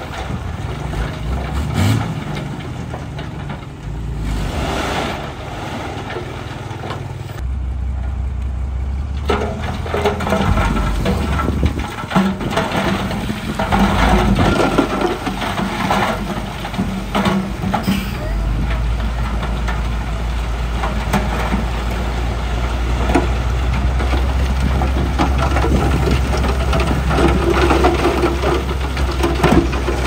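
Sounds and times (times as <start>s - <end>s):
heavy diesel engine running: 0.0s - 30.0s
rock grinding and scraping: 9.2s - 17.8s.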